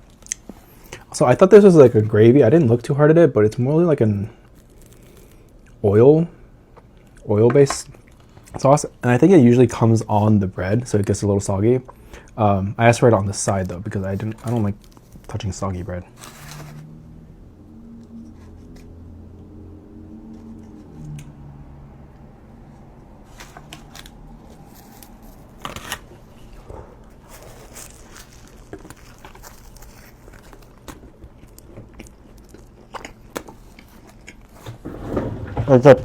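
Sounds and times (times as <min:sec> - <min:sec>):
person chewing food: 0:04.4 - 0:05.8, 0:23.4 - 0:34.8
low hum: 0:16.1 - 0:30.8.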